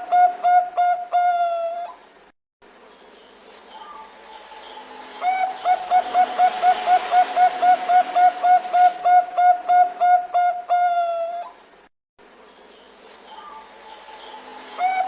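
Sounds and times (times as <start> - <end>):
dove cooing: 0.0 - 2.0, 4.7 - 11.6, 14.8 - 15.0.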